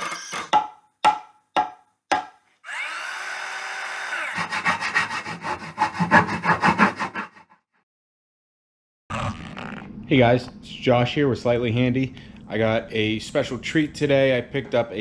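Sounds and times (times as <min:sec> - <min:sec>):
power tool running: 0:00.0 - 0:00.5, 0:02.6 - 0:04.6
sharp knocks: 0:00.5 - 0:02.4
sawing or rasping on wood: 0:02.7 - 0:07.6.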